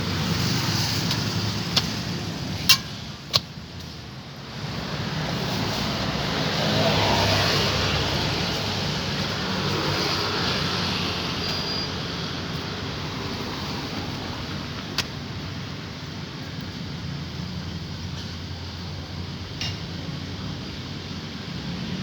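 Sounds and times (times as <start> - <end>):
vehicle passing: 4.7 - 14.6.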